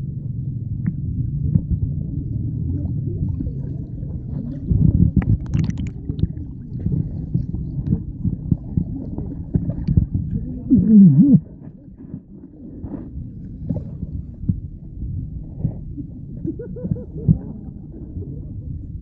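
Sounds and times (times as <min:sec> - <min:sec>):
wavering low tone: 0:00.0 - 0:09.8, 0:10.4 - 0:11.6
muffled underwater water sloshing: 0:00.0 - 0:19.0.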